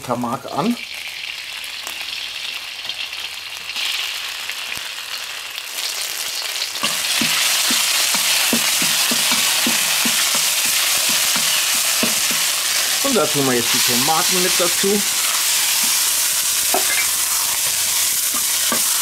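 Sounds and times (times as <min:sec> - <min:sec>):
pepper paste sizzling in hot oil: 0:00.0 - 0:19.0
metal spatula scraping a wok: 0:13.7 - 0:19.0.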